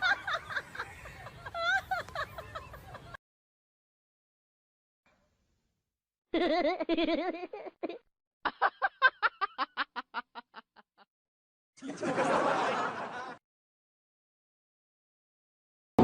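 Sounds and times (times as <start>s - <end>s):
person laughing: 0.0s - 3.2s, 6.3s - 11.1s.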